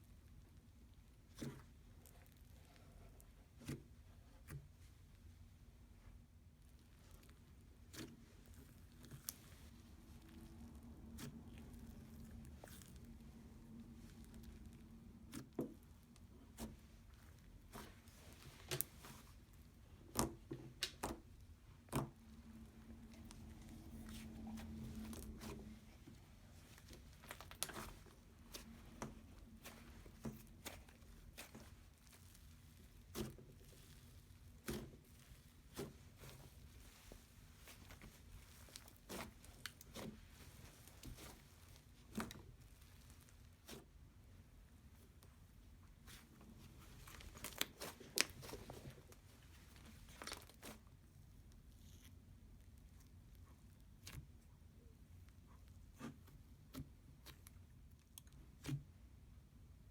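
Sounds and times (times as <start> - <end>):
slime clicking and crackling: 6.7 - 44.0, 46.9 - 54.4.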